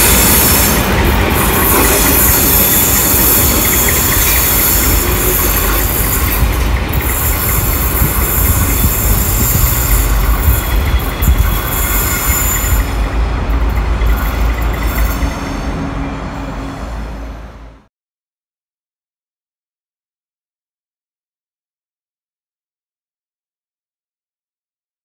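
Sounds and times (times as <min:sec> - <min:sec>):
high wheel squeal: 0:00.0 - 0:17.8
train wheels rumbling on rails: 0:00.0 - 0:17.9.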